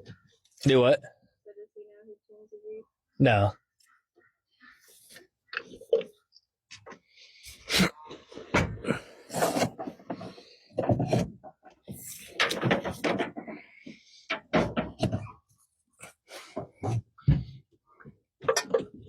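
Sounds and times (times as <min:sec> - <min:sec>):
scraping or rustling: 0:09.3 - 0:11.4
knocks and clatters: 0:09.6 - 0:15.4.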